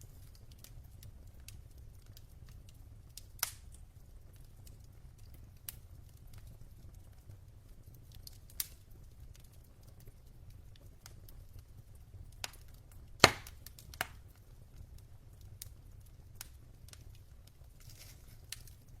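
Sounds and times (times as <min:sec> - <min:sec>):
fire rumbling: 0:00.0 - 0:19.0
logs crackling: 0:00.0 - 0:19.0
loud pop from fire: 0:03.4 - 0:03.7, 0:13.2 - 0:14.3.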